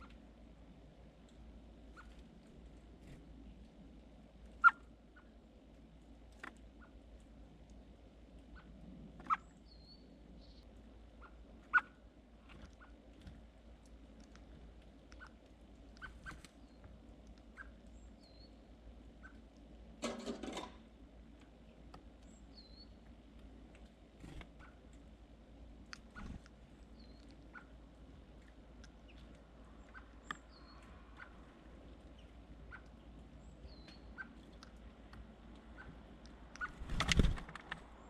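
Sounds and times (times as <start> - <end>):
small birds chirping: 1.1 - 20.0, 20.9 - 38.0
rustling flurry: 36.7 - 37.8.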